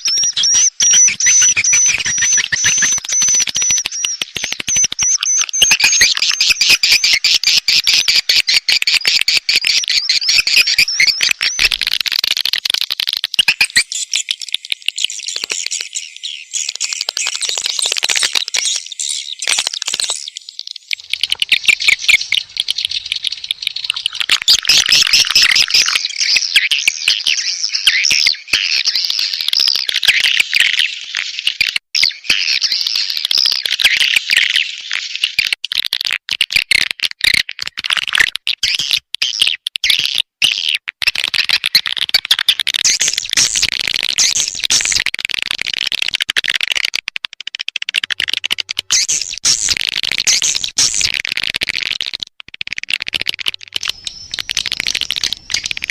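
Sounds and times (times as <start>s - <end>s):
swiftlets twittering and chirping: 0.0s - 11.9s, 13.4s - 27.8s, 42.8s - 45.0s, 47.9s - 51.2s, 52.8s - 55.9s.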